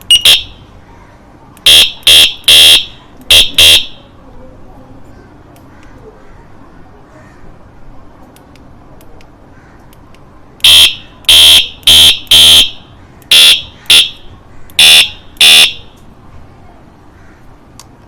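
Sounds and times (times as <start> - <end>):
electronic bicycle horn beeping: 0.0 - 0.7, 1.6 - 4.0, 10.6 - 14.2, 14.8 - 15.8.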